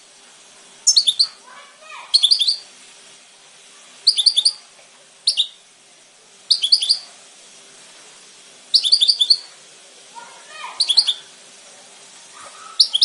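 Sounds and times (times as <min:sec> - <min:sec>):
goldfinch twittering song: 0:00.8 - 0:01.4, 0:02.1 - 0:02.6, 0:04.1 - 0:04.6, 0:05.3 - 0:05.6, 0:06.5 - 0:07.1, 0:08.7 - 0:09.5, 0:10.8 - 0:11.2.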